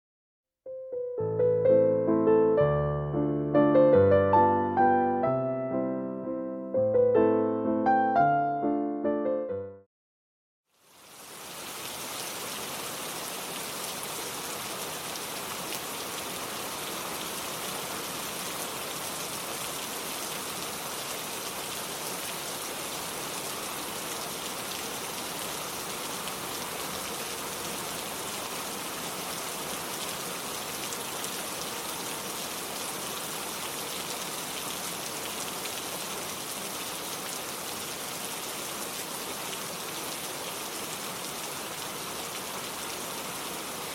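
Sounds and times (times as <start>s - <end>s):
steady rain falling: 10.7s - 43.9s.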